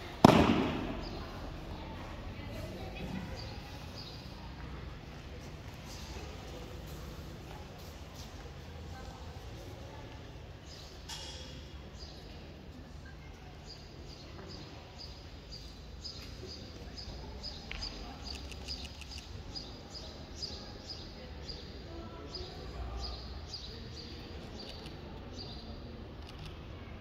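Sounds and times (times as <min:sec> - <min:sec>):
small birds chirping: 0:02.8 - 0:04.4, 0:13.5 - 0:25.8.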